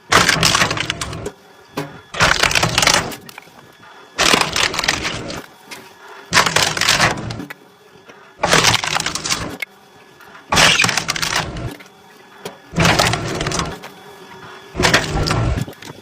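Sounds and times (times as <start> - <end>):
wood cracking apart: 0.1 - 1.3, 2.1 - 3.4, 4.2 - 5.4, 6.3 - 7.4, 8.4 - 9.6, 10.5 - 11.8, 12.8 - 13.8, 14.8 - 16.0.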